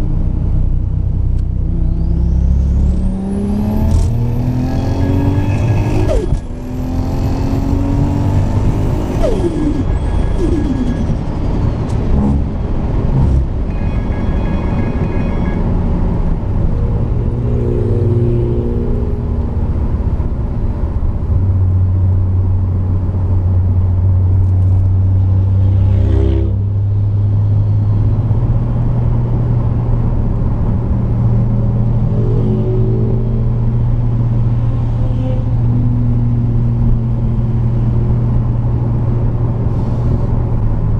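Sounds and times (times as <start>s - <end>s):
car engine running: 0.0s - 25.4s.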